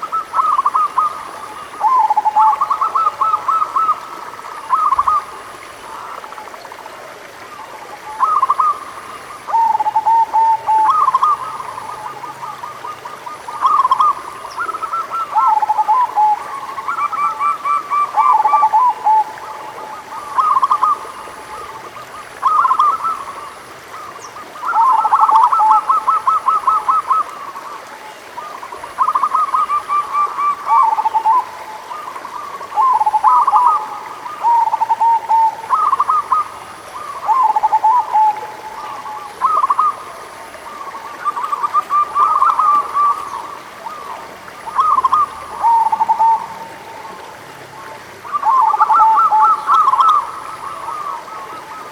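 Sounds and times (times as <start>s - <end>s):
doves cooing: 0.0s - 6.7s, 7.3s - 51.9s.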